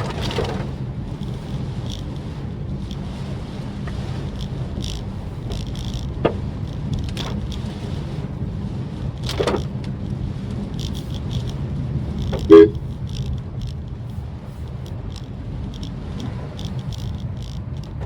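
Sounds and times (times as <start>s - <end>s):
car road and engine rumble: 0.0s - 18.0s
light ticks: 1.2s - 7.9s, 9.0s - 18.0s
car horn toot: 12.4s - 12.8s.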